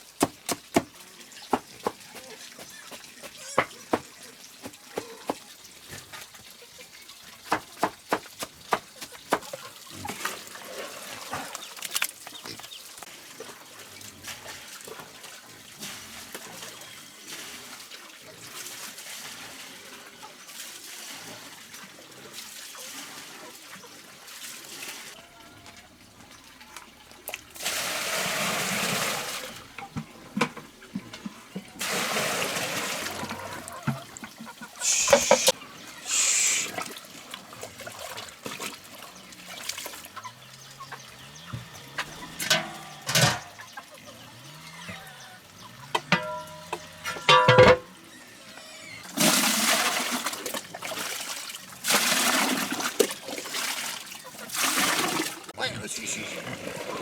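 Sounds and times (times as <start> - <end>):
water splashing: 30.9 - 48.0, 49.0 - 57.0
short squeaky calls: 34.8 - 36.8
sharp clanks: 42.4 - 43.7, 46.0 - 47.9.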